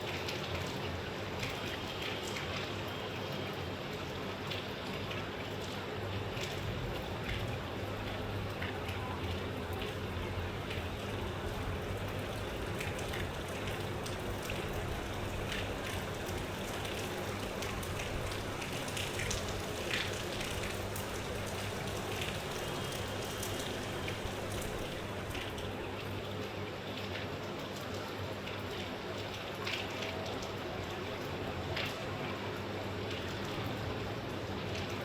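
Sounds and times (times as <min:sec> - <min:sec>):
rain falling: 0:00.0 - 0:35.0
raindrops ticking on a surface: 0:00.0 - 0:35.0.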